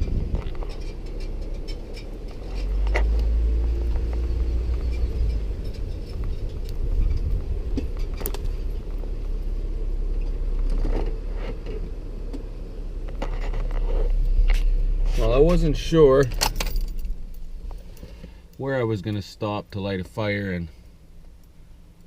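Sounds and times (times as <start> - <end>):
light clinks and rattles: 0.0 - 9.0, 15.5 - 18.6
engine and road rumble: 0.0 - 22.0.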